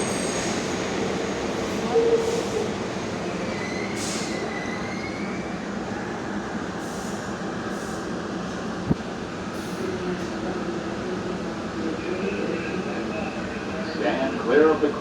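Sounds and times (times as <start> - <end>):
subway car wheels rumbling on rail: 0.0 - 15.0.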